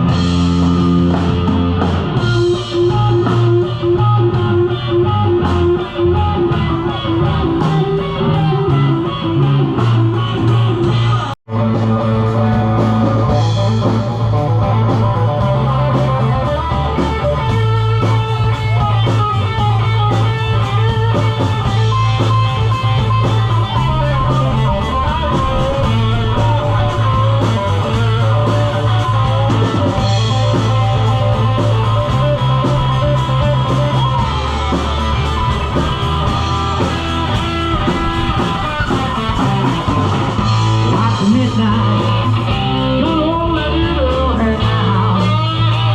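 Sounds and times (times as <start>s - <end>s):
bass guitar: 0.0s - 45.9s
drums: 0.0s - 45.9s
electric guitar: 0.0s - 45.9s.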